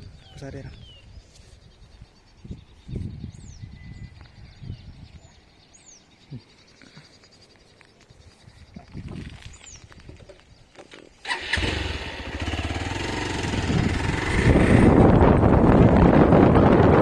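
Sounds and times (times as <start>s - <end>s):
wind noise on microphone: 0.0s - 5.4s, 8.5s - 17.0s
vehicle engine starting and pulling away: 11.2s - 16.8s.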